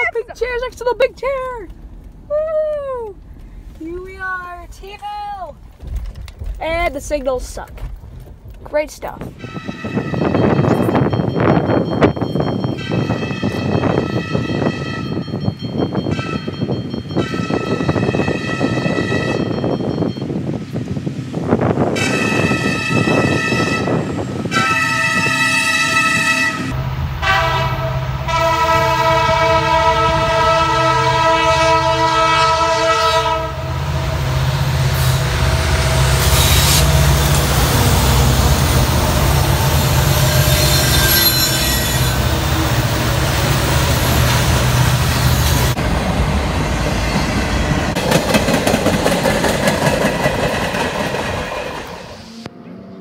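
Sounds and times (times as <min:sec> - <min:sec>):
diesel locomotive engine rumble: 0:00.0 - 0:53.0
train wheels clattering on rails: 0:00.4 - 0:20.5, 0:34.9 - 0:52.2
train horn blasts: 0:09.4 - 0:10.9, 0:12.8 - 0:15.2, 0:16.1 - 0:19.6, 0:21.9 - 0:38.5, 0:39.6 - 0:43.0.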